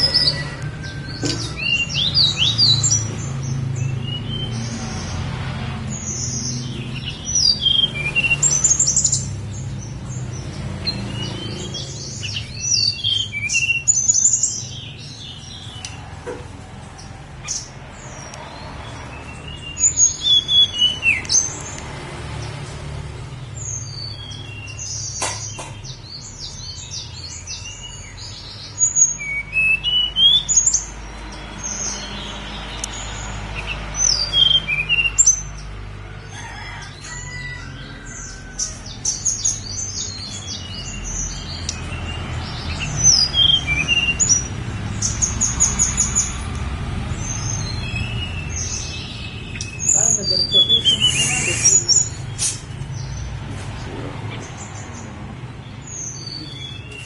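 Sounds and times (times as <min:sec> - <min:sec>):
bird whistling song: 0:06.0 - 0:09.3, 0:10.8 - 0:16.0, 0:19.2 - 0:21.5, 0:26.2 - 0:35.6, 0:37.2 - 0:46.3, 0:47.2 - 0:53.1.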